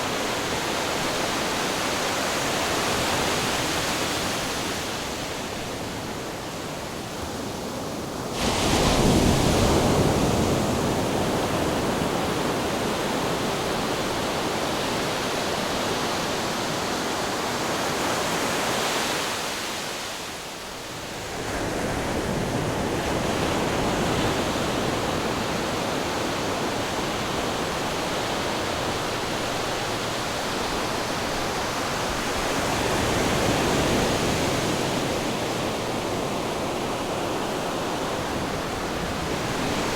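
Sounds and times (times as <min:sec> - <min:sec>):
ocean waves rushing: 0:08.3 - 0:19.9, 0:21.6 - 0:39.9.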